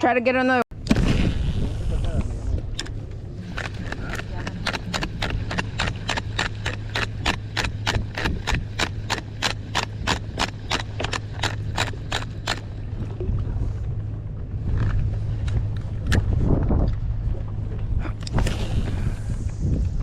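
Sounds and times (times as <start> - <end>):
steady low hum: 0.5 - 20.0
fishing reel clicking: 2.2 - 12.7.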